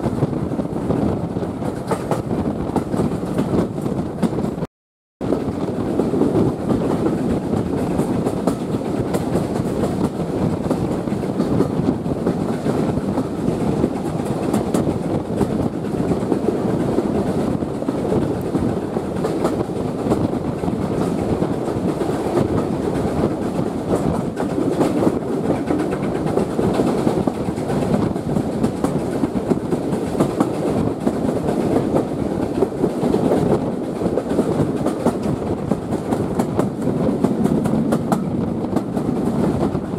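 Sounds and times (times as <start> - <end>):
train wheels rumbling on track: 0.0 - 39.9
wheels clicking over rail joints: 5.4 - 39.9.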